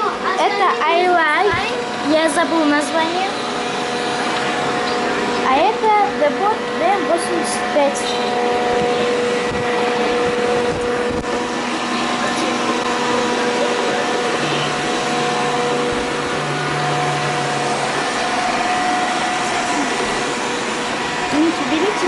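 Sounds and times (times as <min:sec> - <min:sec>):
constant whining tones: 0:00.0 - 0:22.0
low hum: 0:00.7 - 0:22.0
robot vacuum cleaners whirring: 0:10.8 - 0:22.0.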